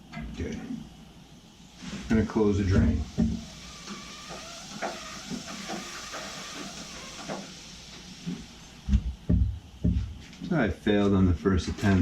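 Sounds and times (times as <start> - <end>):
torch flame hissing: 0.8 - 10.2.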